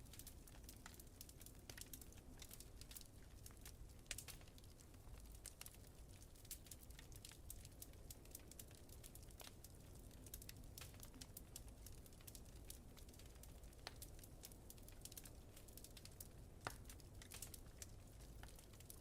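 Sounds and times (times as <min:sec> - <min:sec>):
wood fire crackling: 0:00.0 - 0:19.0
fire pops: 0:15.0 - 0:19.0.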